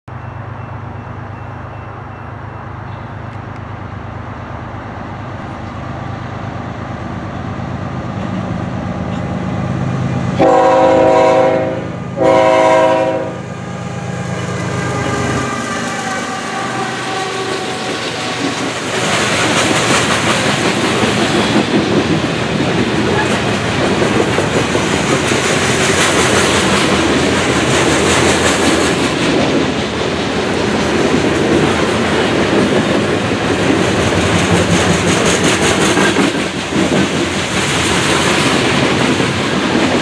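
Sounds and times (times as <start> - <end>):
diesel locomotive engine running: 0.1 - 40.0
rail cars rolling with wheel clatter: 0.1 - 40.0
locomotive horn blasts: 10.4 - 13.5, 14.7 - 17.9.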